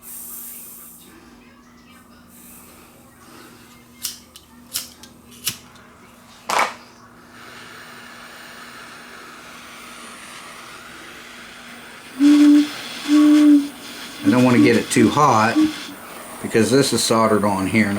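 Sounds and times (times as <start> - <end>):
flame hissing: 7.2 - 17.9.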